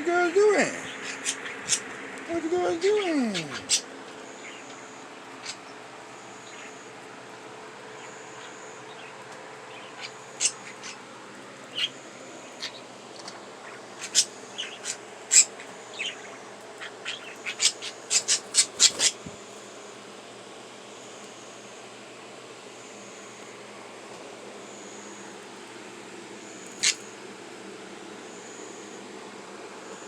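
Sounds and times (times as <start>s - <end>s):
faint hum: 0.0s - 30.0s
budgerigars chirping: 0.8s - 5.8s, 6.4s - 6.9s, 7.9s - 11.1s, 11.7s - 19.3s, 26.7s - 27.1s.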